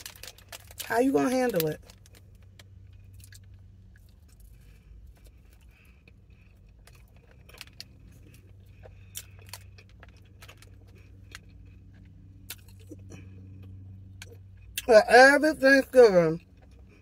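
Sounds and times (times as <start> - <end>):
low hum inside car: 0.0 - 17.0
quiet chewing: 1.9 - 14.9.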